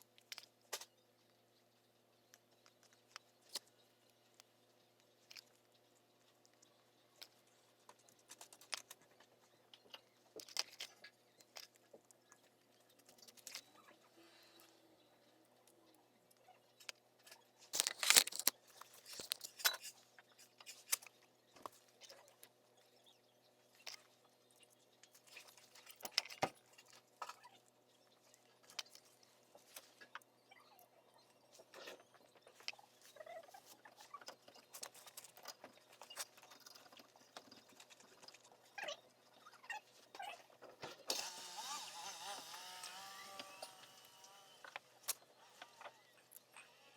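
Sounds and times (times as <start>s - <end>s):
tools clicking and scraping: 16.8s - 22.2s.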